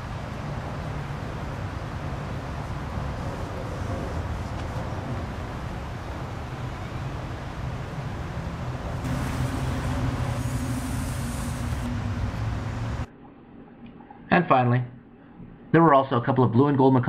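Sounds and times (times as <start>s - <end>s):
brighter hiss: 9.0s - 12.0s
background hiss: 9.0s - 13.1s.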